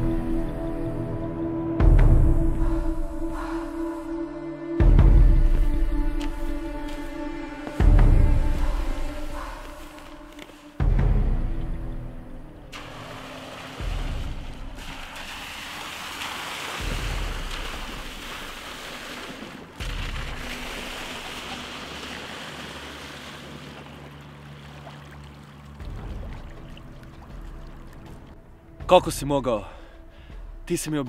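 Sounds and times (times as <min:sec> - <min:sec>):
rushing water and wind: 0:04.8 - 0:29.4.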